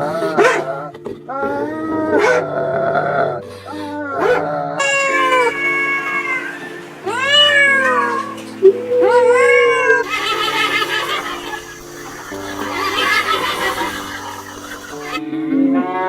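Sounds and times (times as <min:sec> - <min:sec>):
background music: 0:00.0 - 0:16.0
pet animal crying: 0:04.1 - 0:15.2.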